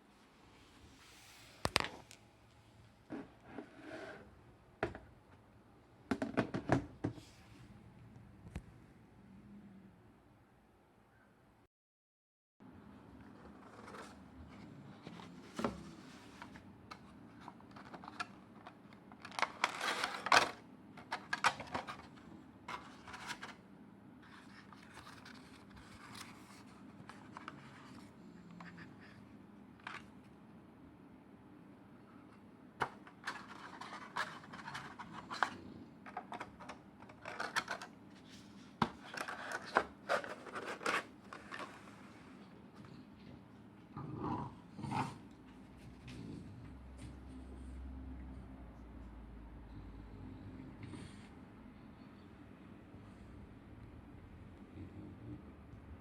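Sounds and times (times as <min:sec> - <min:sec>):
objects scraping and clicking: 0:32.8 - 0:42.0.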